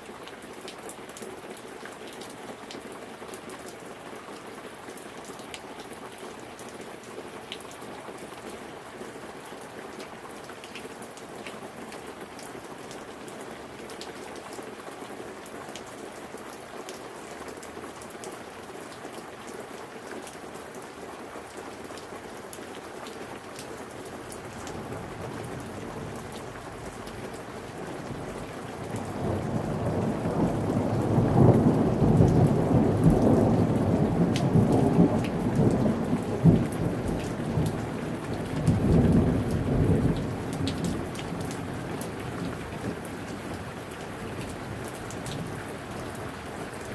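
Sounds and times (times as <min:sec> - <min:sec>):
steady rain falling: 0:00.0 - 0:46.9
thunder rumbling: 0:24.5 - 0:42.2.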